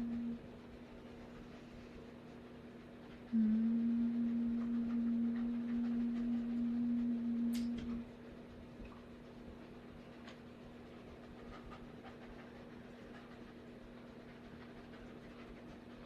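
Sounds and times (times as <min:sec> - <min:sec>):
steady low tone: 0:00.0 - 0:00.6, 0:03.3 - 0:08.2.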